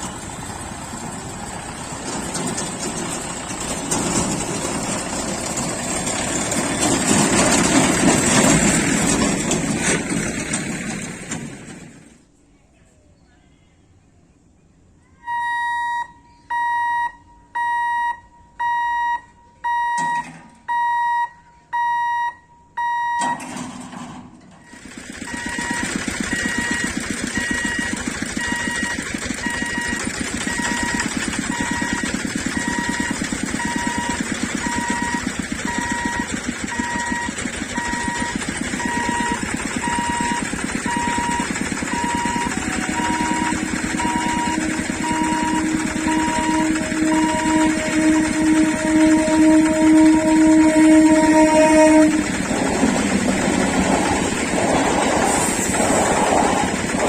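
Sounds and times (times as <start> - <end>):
train passing rumble: 0.0 - 12.4, 29.1 - 57.0
level crossing alarm beeping: 15.2 - 23.8, 24.6 - 55.7.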